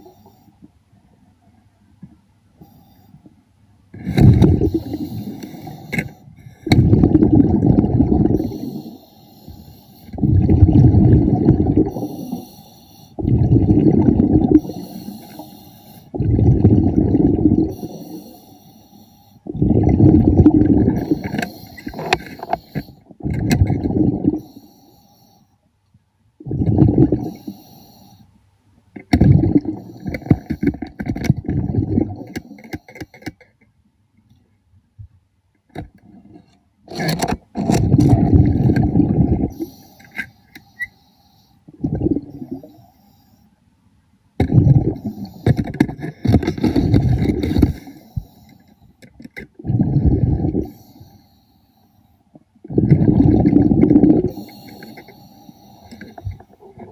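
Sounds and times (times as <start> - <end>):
underwater exhale bubbling: 4.0 - 18.6, 19.4 - 24.8, 26.4 - 28.0, 29.1 - 32.6, 37.7 - 40.1, 41.7 - 42.9, 44.4 - 48.6, 49.5 - 51.2, 52.6 - 56.9
regulator inhale hiss: 4.6 - 6.8, 8.4 - 10.2, 11.9 - 13.2, 14.6 - 16.2, 17.7 - 19.5, 21.0 - 23.1, 24.4 - 25.6, 27.2 - 28.3, 39.5 - 41.7, 42.4 - 43.6, 45.0 - 49.0, 50.4 - 52.3, 54.2 - 56.5.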